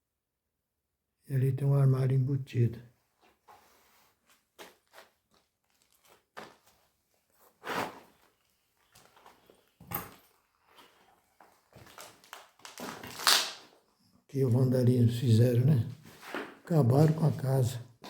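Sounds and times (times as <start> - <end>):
footsteps crunching over debris: 4.2 - 9.9, 10.6 - 13.1.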